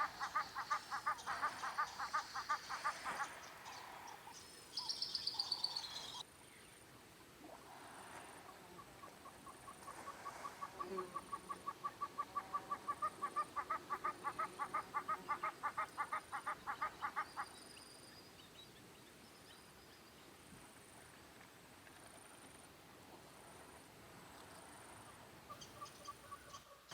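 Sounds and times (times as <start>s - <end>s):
faint high chirp: 4.3s - 6.2s.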